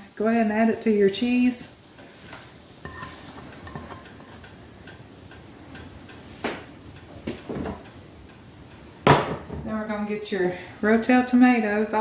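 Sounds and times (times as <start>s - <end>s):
utensil clicking against frying pan: 2.3s - 8.9s.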